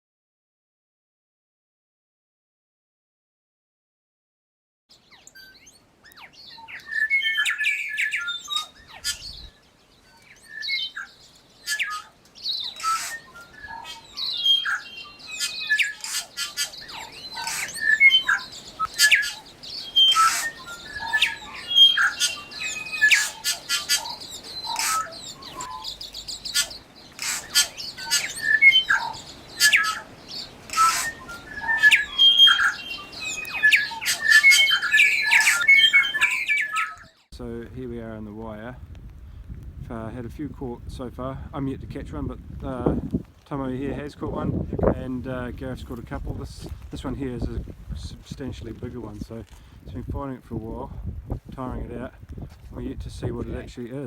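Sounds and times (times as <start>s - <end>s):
birds chirping and squawking: 4.9s - 37.3s.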